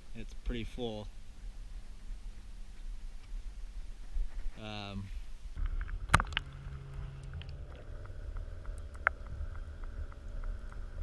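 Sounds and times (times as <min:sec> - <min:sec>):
low rumble: 0:01.0 - 0:11.0
faint hum: 0:04.6 - 0:11.0.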